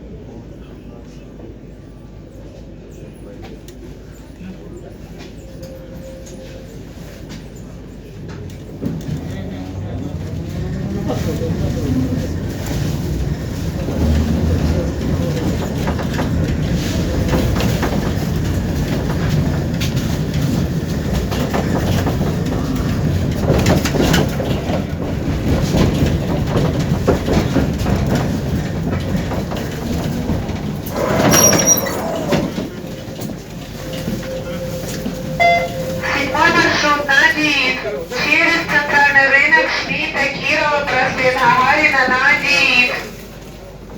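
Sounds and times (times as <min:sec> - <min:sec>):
tram rumbling on rails: 0:00.0 - 0:43.9
wheels clicking over rail joints: 0:10.3 - 0:34.2.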